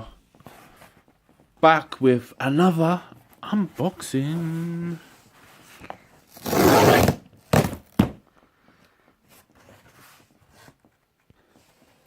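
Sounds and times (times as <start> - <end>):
box scraping: 6.3 - 7.8
box knocking down: 7.0 - 8.2.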